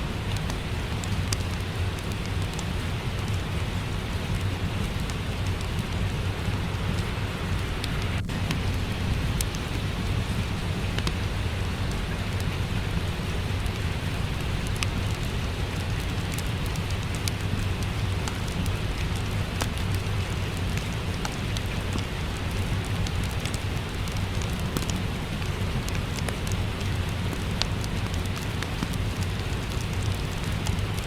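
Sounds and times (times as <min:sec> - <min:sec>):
low rumble: 0:00.0 - 0:19.2
steady rain: 0:00.0 - 0:31.0
wood fire crackling: 0:00.0 - 0:31.0.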